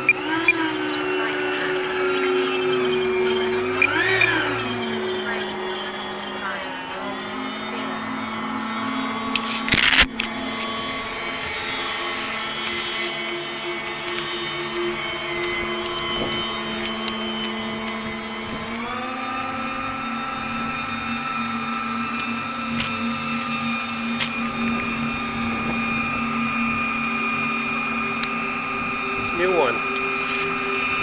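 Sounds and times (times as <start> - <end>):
electric ducted fan whining: 0.0 - 31.0.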